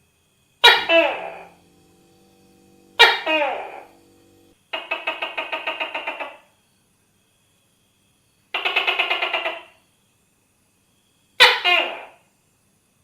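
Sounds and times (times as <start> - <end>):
gecko rattling call: 0.6 - 1.9, 2.9 - 3.8, 4.8 - 6.5, 8.5 - 9.8.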